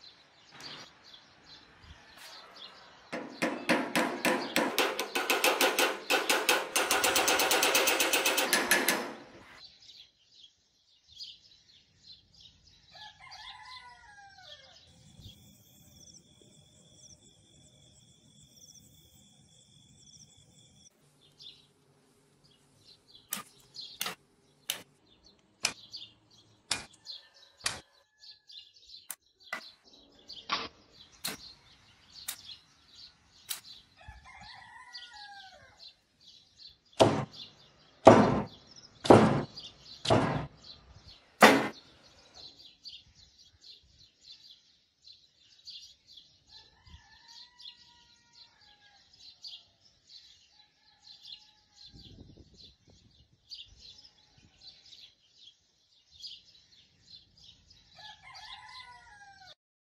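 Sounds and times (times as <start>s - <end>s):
birds chirping: 0.0s - 6.6s, 7.8s - 44.0s.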